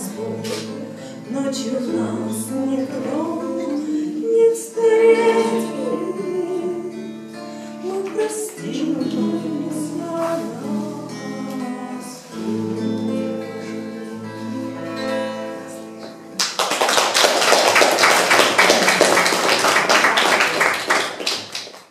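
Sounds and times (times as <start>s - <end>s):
person singing: 0.0s - 16.0s
acoustic guitar: 0.0s - 21.9s
audience applause: 16.4s - 21.9s.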